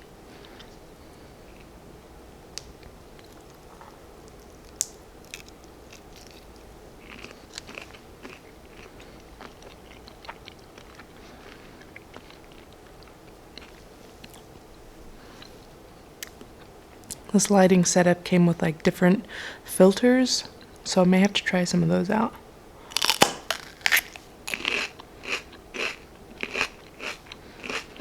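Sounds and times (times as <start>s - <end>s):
person chewing food: 2.6s - 17.2s, 22.8s - 28.0s
sharp crunches: 22.9s - 27.9s.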